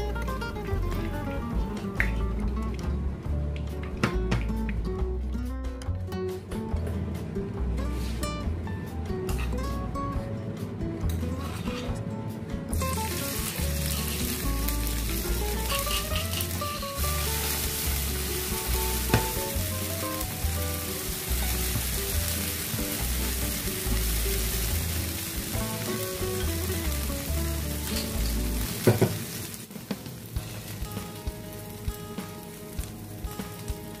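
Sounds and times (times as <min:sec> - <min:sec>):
background music: 0:00.0 - 0:34.0
chilli and garlic sizzling in oil: 0:12.7 - 0:34.0.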